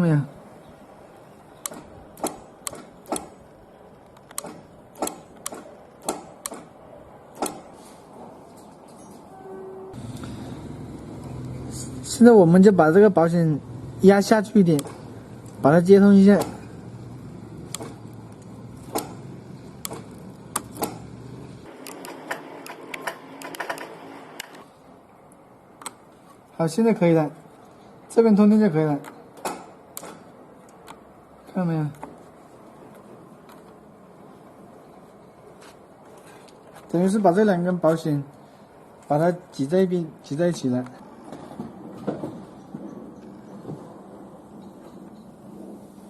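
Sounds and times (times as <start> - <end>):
low background hum: 0.0 - 46.0
clicks of fuse being pressed: 4.0 - 6.7, 17.6 - 19.2.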